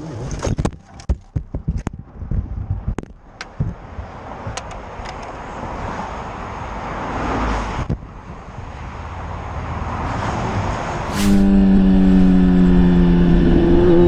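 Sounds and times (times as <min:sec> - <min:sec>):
rushing air: 0:10.8 - 0:13.8
motorcycle engine riding: 0:11.4 - 0:14.0.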